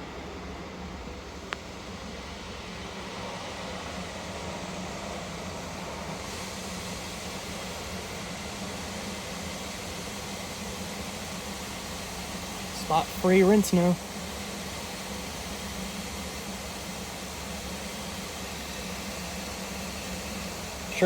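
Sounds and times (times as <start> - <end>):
car wash rushing: 3.0 - 14.2.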